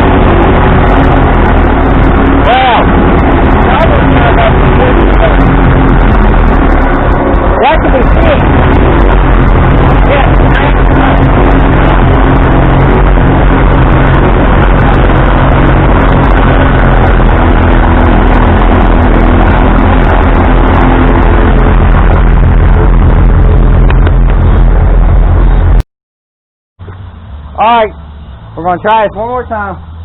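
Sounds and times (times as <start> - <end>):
loud tractor engine running: 0.0 - 25.8.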